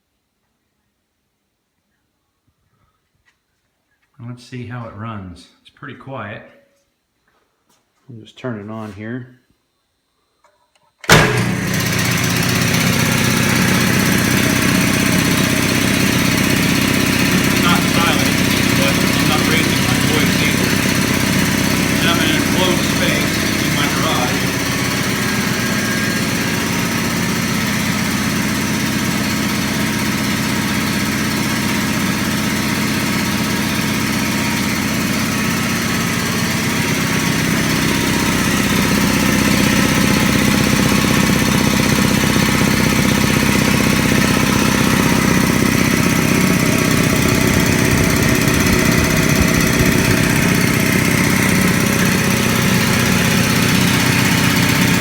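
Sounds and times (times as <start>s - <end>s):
air compressor running: 11.1s - 55.0s.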